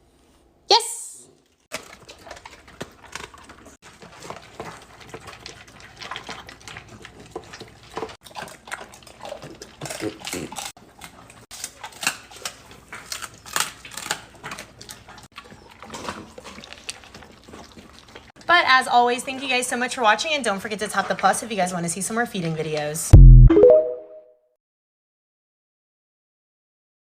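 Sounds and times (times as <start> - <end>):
dogs chewing and lapping: 1.4 - 23.1.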